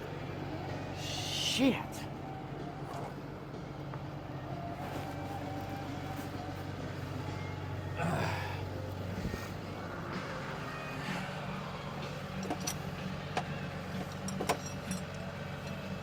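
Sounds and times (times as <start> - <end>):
truck diesel engine idling: 0.0 - 16.0
tool clinks: 12.3 - 15.9.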